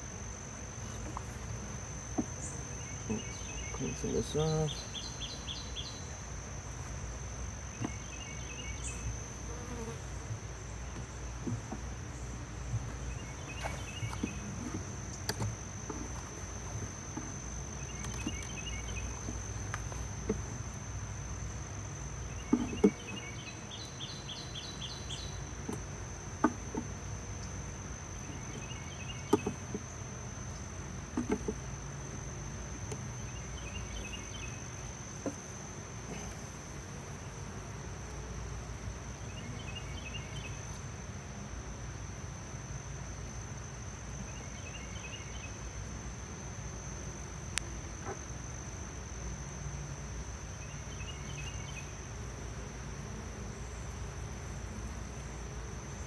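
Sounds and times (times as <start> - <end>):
honey bees buzzing: 0.0 - 41.7, 43.4 - 56.0
insects chirping: 0.0 - 56.0
hive tool knocks and scrapes: 0.8 - 3.3, 9.7 - 11.9, 12.7 - 17.4, 22.4 - 23.3, 25.6 - 27.1, 28.3 - 30.0, 31.1 - 31.7, 35.2 - 35.5.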